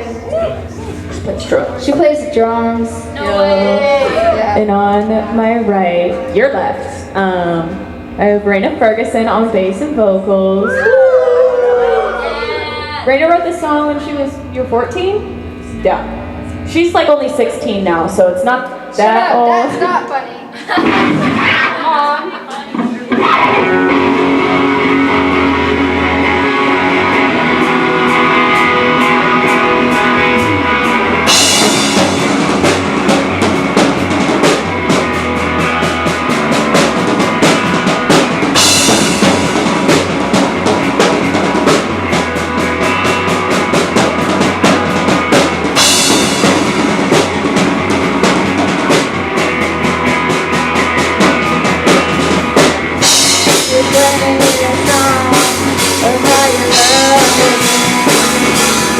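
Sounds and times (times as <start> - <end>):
bass guitar: 0.0 - 20.2, 20.8 - 22.0, 23.0 - 58.9
electric guitar: 0.0 - 58.9
drum kit: 22.7 - 58.9
cymbal crashes: 24.4 - 49.7.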